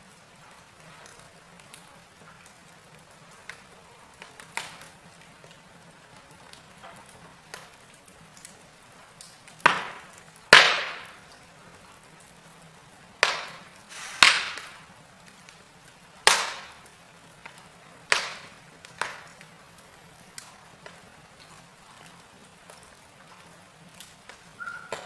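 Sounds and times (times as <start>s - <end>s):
faint steady hiss: 0.0s - 25.0s
wood fire crackling and popping: 0.0s - 25.0s.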